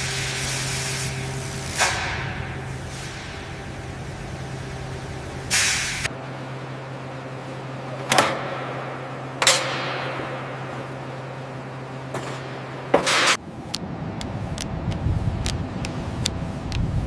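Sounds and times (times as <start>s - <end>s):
low steady hum: 13.4s - 17.0s.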